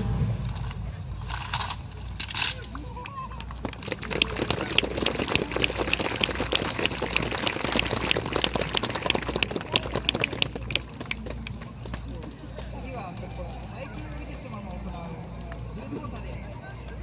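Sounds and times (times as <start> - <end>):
audience applauding: 3.0 - 12.2.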